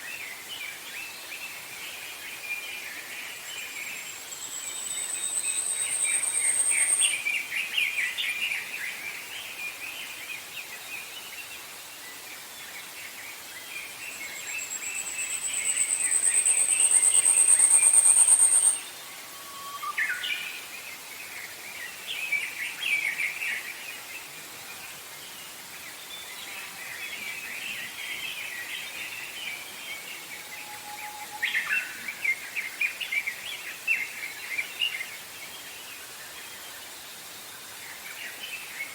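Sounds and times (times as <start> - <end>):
whistled bird notes: 3.4 - 8.2, 14.1 - 21.0, 27.4 - 33.2.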